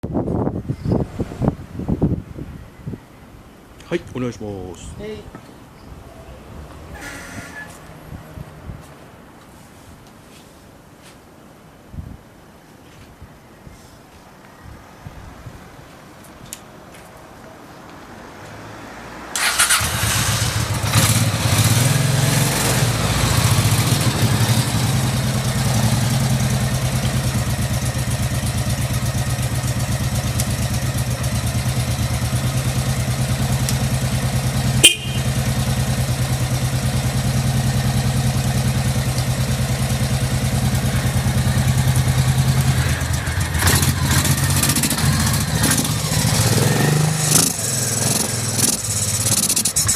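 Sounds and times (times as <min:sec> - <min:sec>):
motorcycle engine starting and idling: 0:06.8 - 0:08.4, 0:19.4 - 0:49.9.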